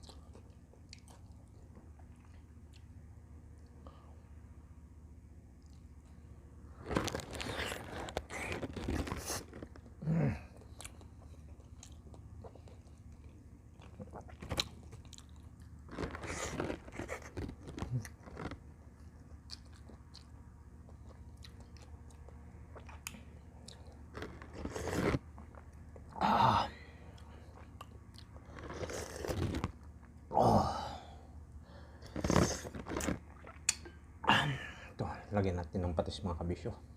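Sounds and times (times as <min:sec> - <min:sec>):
person chewing meat: 0:00.0 - 0:03.0, 0:06.8 - 0:26.2, 0:27.0 - 0:30.3, 0:31.9 - 0:34.0.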